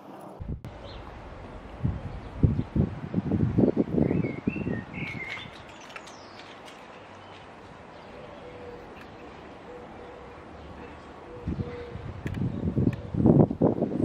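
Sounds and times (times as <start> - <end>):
wind gusts on microphone: 0.4 - 6.4, 11.2 - 14.0
bird chirping: 0.7 - 2.8, 3.6 - 13.3.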